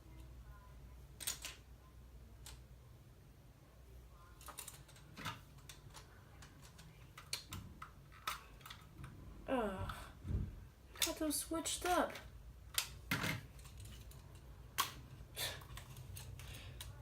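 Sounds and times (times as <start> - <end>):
plastic bricks clicking: 1.2 - 1.6, 4.4 - 8.9.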